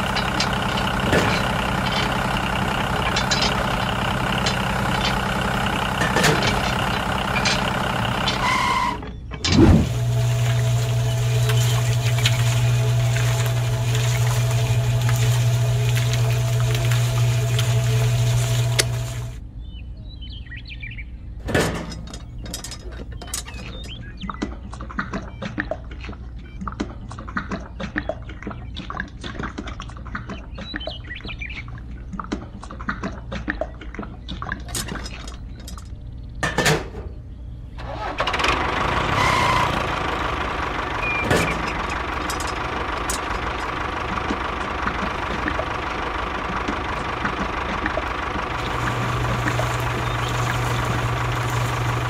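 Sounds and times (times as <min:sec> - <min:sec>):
small electric motor humming: 0:09.8 - 0:19.4, 0:48.6 - 0:52.0
wet cement slopping: 0:10.2 - 0:19.2.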